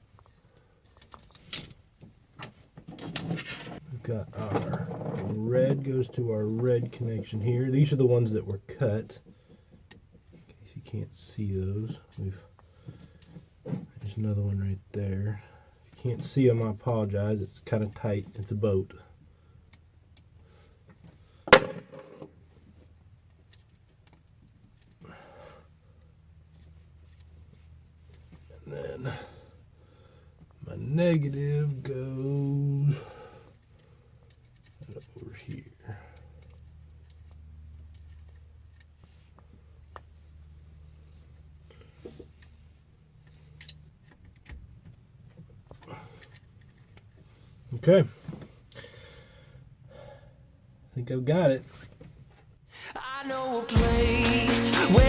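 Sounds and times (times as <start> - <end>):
metal tool clinking on metal: 21.5 - 22.3.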